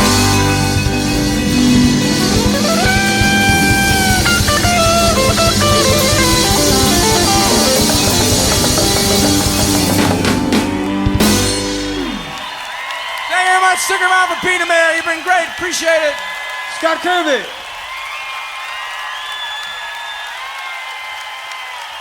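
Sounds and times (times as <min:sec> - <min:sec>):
bass guitar: 0:00.0 - 0:12.4
electric guitar: 0:00.0 - 0:12.4
drums: 0:00.0 - 0:13.1.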